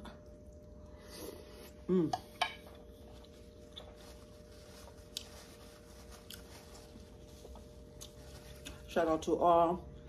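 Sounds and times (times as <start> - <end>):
quiet chewing: 3.0 - 8.9.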